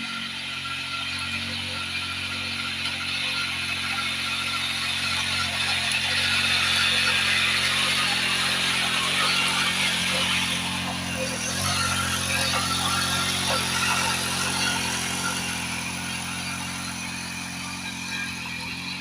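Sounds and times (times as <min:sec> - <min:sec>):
small tiller engine running: 0:00.0 - 0:19.0.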